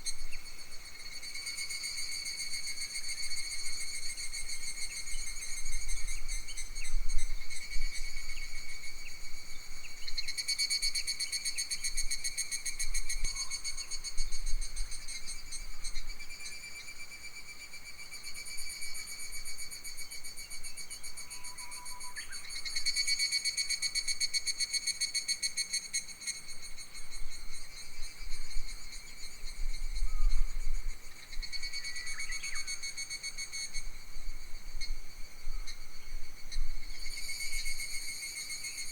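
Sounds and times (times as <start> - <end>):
wind rumble on microphone: 28.1 - 31.6.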